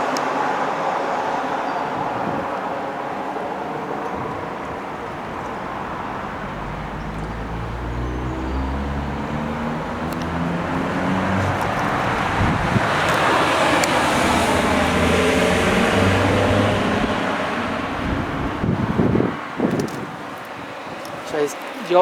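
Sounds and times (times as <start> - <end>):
passing traffic rush: 0.8 - 22.0
wind on microphone: 3.9 - 21.2
vehicle engine pulling away: 4.0 - 19.8.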